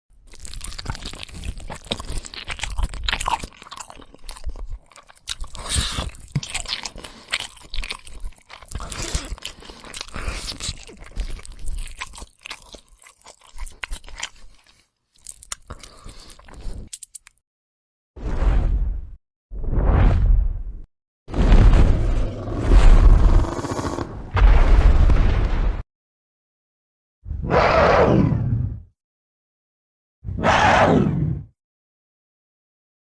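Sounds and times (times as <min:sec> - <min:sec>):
crunching and crackling: 0:00.2 - 0:17.4.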